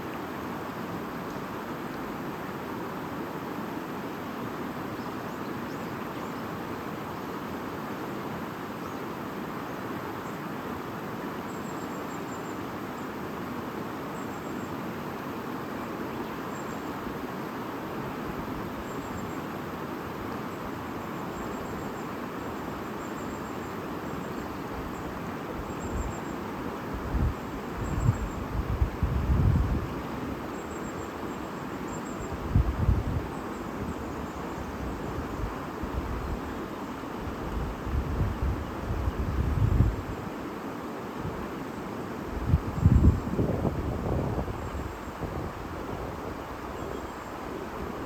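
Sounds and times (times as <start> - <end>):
wind gusts on microphone: 26.9 - 30.5, 32.2 - 36.5, 37.2 - 40.3, 42.2 - 48.0.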